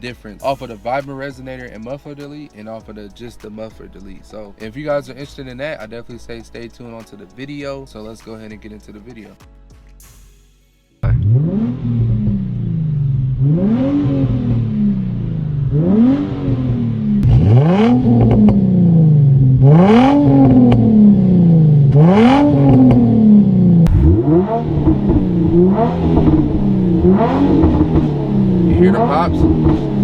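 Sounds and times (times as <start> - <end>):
car engine revving: 11.0 - 30.0.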